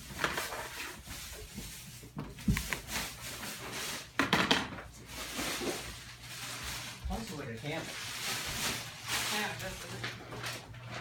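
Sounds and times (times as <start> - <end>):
sharp household knocks: 4.2 - 4.8.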